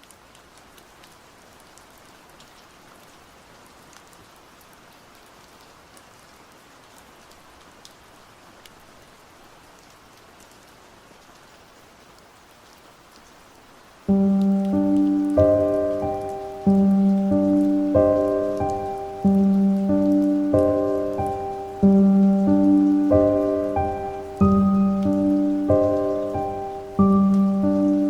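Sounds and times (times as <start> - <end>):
steady rainfall: 0.0 - 28.0
raindrop ticks: 14.1 - 28.0.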